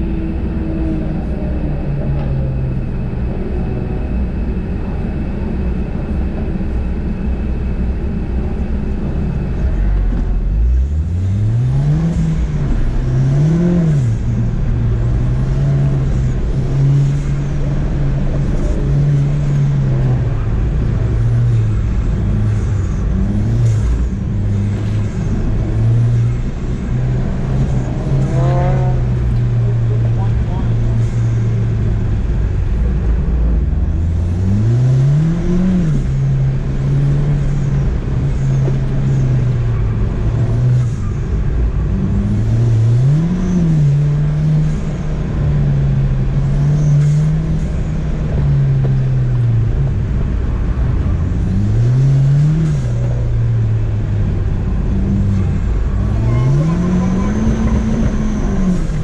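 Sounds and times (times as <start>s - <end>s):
car engine idling and revving: 0.0s - 59.0s.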